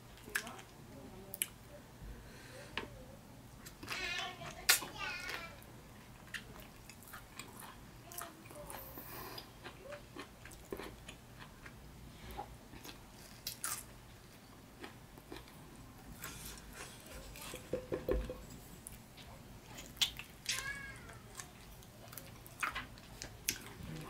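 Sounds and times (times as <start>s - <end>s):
wet chewing and smacking: 6.1s - 11.8s, 18.8s - 24.0s.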